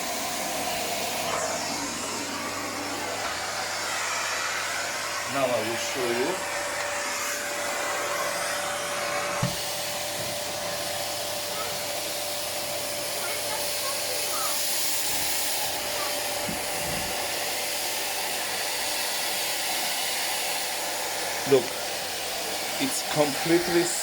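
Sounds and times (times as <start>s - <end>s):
vacuum cleaner running: 0.0s - 24.0s
vacuum nozzle knock: 9.2s - 10.5s.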